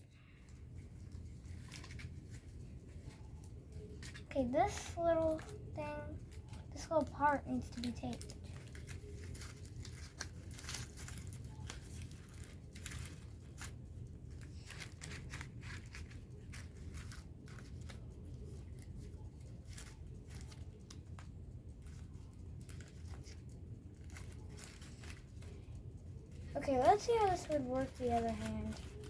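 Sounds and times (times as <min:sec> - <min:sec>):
paper crinkling: 0:00.0 - 0:29.0.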